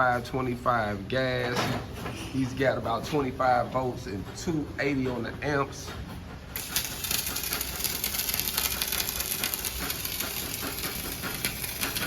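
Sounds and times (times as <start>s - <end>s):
welding arc crackling sizzle: 6.6s - 12.0s.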